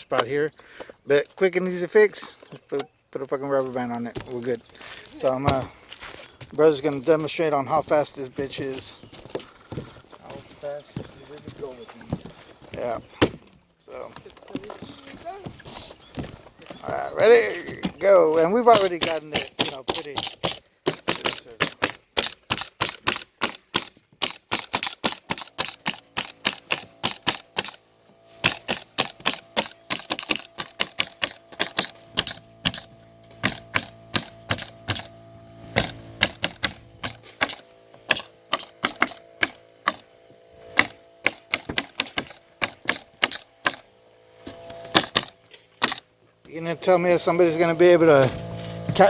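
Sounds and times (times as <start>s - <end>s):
pneumatic nailer firing: 17.7s - 46.1s.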